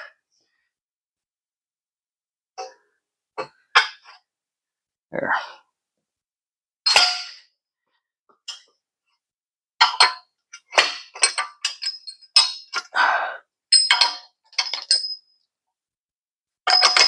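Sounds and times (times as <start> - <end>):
metal clinks and knocks: 9.9 - 12.9, 13.7 - 15.4, 16.7 - 17.0.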